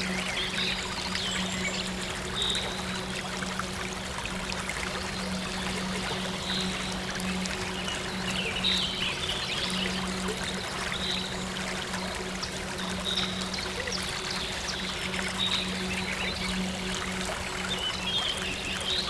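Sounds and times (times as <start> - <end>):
low synth drone: 0.0 - 19.0
stream water trickling: 0.0 - 19.0.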